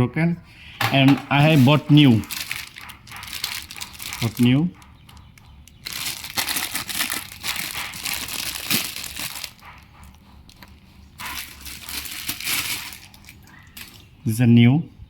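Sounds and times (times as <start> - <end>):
packaging crinkling and rustling: 1.0 - 14.1.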